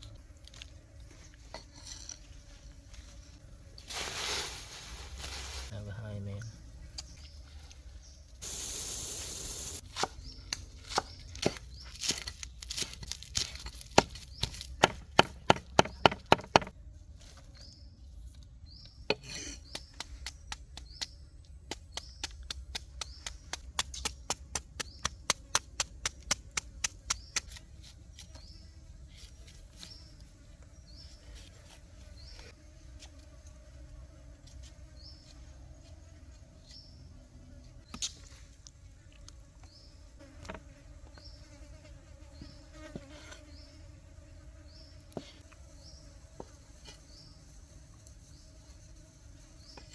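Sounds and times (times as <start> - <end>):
brief hiss: 8.4 - 9.8.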